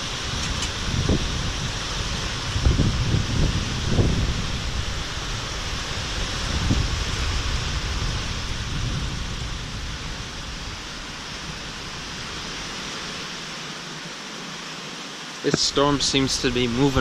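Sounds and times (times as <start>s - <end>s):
low thunder rumble: 0.0s - 12.1s
rain and wind hiss: 0.0s - 17.0s.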